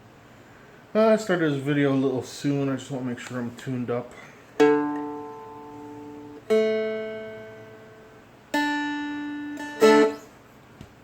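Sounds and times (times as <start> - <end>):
four-string guitar strummed: 4.6 - 10.4.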